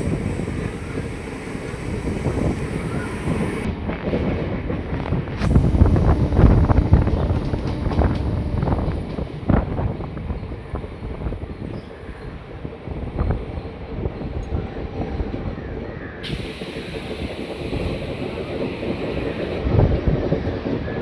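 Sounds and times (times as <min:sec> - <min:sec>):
loud rushing hiss: 0:00.0 - 0:03.7, 0:05.4 - 0:10.1, 0:16.2 - 0:19.7
train rumbling on rails: 0:00.0 - 0:21.0.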